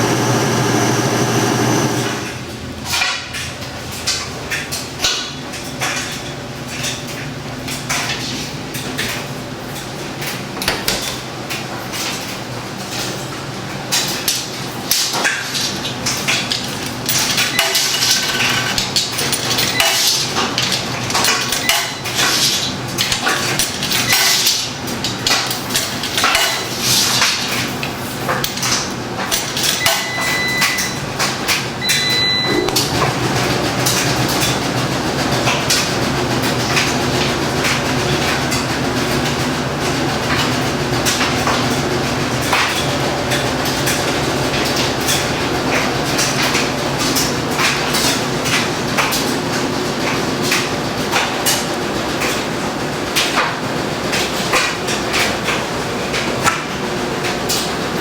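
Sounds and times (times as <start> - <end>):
washing machine clanking: 0.0 - 58.0
washing machine hum: 0.0 - 58.0
short high beeps: 31.8 - 32.8.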